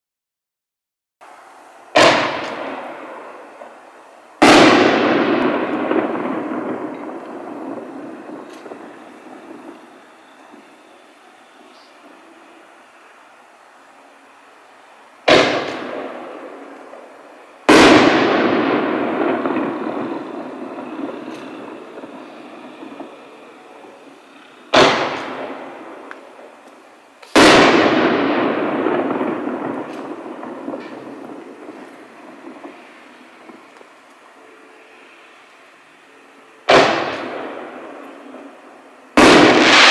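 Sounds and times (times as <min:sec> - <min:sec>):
firework bangs with echoing rumble: 0:01.9 - 0:11.2, 0:15.2 - 0:34.1, 0:36.6 - 0:39.9.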